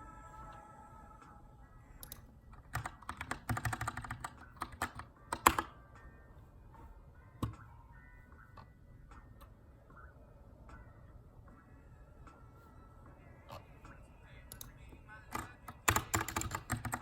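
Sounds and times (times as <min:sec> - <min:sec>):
mechanical keyboard typing: 0:02.0 - 0:05.8, 0:15.3 - 0:17.0.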